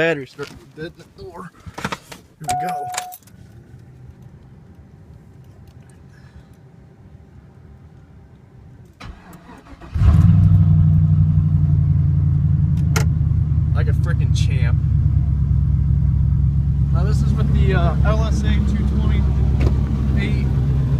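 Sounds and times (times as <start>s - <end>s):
faint steady hum: 2.4s - 9.0s
engine cranking: 9.0s - 10.5s
car engine running loud: 10.0s - 20.9s.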